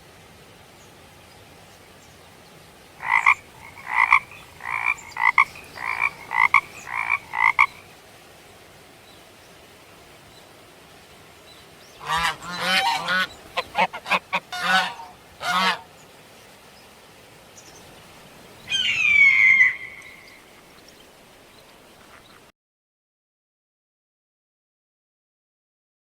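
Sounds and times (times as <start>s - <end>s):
frogs croaking: 3.0s - 7.9s, 18.6s - 22.4s.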